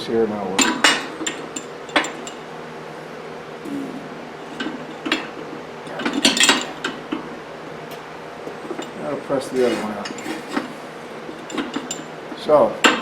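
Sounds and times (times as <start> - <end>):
faint steady hum: 0.0 - 13.0
metal parts clinking: 0.6 - 2.4, 4.4 - 7.3, 8.5 - 12.2.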